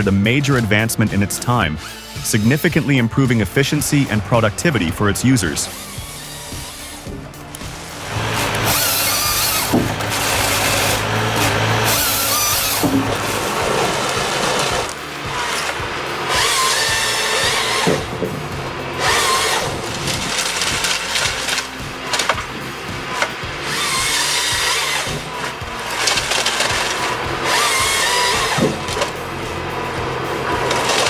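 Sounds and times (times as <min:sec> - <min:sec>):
saw whining through logs: 0:00.0 - 0:31.0.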